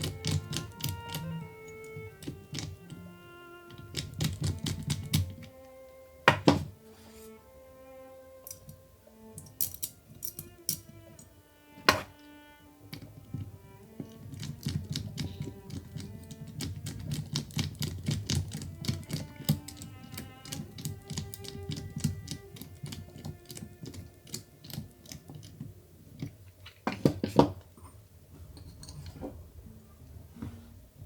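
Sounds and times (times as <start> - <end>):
small plastic and metal clicks: 0.0 - 3.0, 3.7 - 5.6, 9.4 - 11.3, 12.9 - 27.2
soft background music: 0.0 - 27.6, 28.2 - 31.0.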